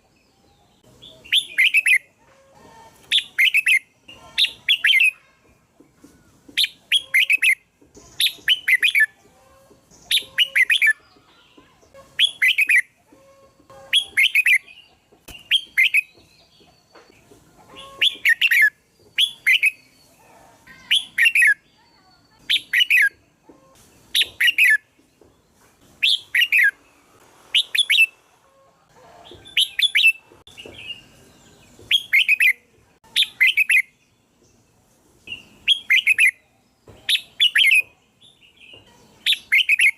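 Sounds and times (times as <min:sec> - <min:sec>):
bulbul singing: 0:00.1 - 0:02.1, 0:03.0 - 0:05.3, 0:06.5 - 0:23.4, 0:29.3 - 0:34.6, 0:35.2 - 0:39.9.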